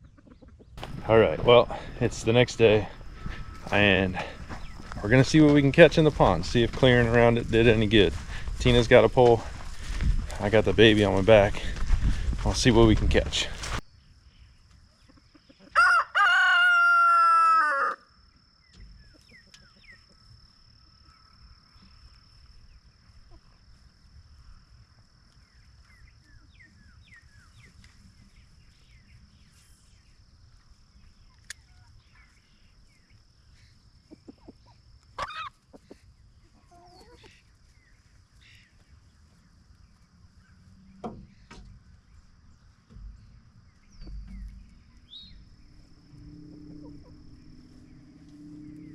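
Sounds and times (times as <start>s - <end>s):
rooster crowing: 15.7s - 18.1s
faint bird chirps: 18.6s - 23.6s, 39.9s - 48.9s.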